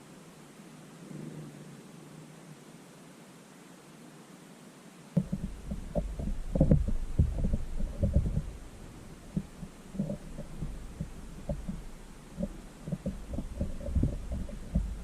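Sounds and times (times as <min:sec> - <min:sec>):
birds pecking at feeder: 0:05.2 - 0:15.0.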